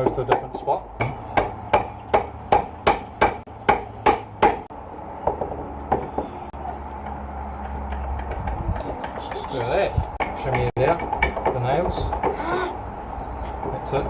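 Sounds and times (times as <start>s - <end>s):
hammer striking wooden board: 1.0s - 6.2s.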